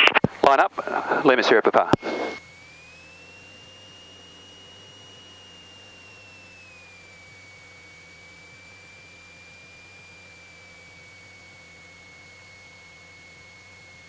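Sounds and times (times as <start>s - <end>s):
high electrical whine: 0.0s - 14.0s
low hum: 0.0s - 14.0s.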